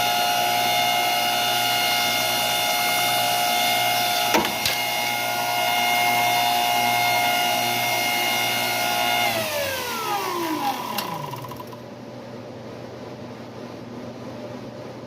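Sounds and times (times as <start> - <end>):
power tool motor whining: 0.0 - 11.8.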